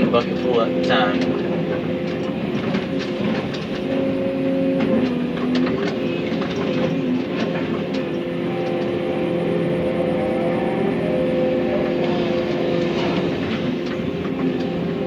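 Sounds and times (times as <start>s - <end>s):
excavator diesel engine running: 0.0s - 15.0s
hydraulics working: 0.0s - 15.0s.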